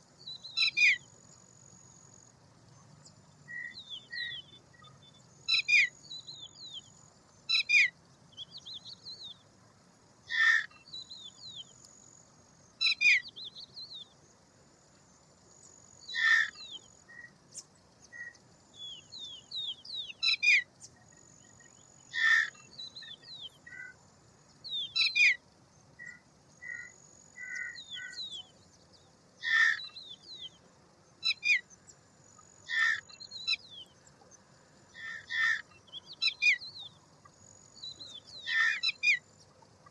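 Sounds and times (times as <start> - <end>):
harsh bird calls: 10.3 - 11.6, 16.0 - 17.4, 21.5 - 24.0, 26.0 - 28.6, 29.4 - 30.6, 32.7 - 33.9, 35.0 - 37.0, 37.8 - 39.2.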